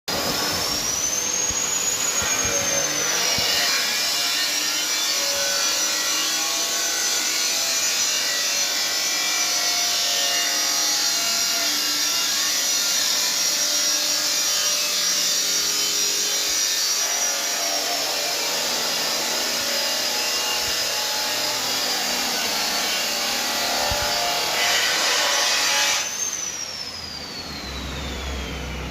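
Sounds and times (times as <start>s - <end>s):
angle grinder grinding metal pipe: 0.1s - 27.2s.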